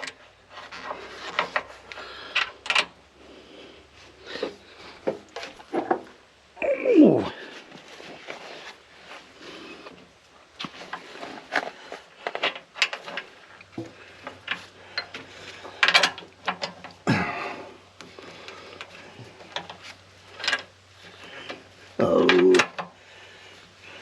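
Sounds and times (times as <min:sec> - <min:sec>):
low steady hum: 0:00.0 - 0:24.0
hand tools clicking and knocking: 0:10.9 - 0:17.0.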